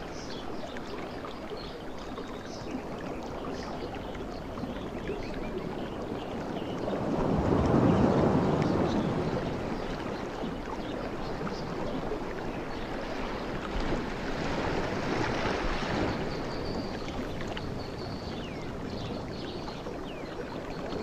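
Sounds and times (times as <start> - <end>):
ocean waves washing in: 5.3 - 20.7.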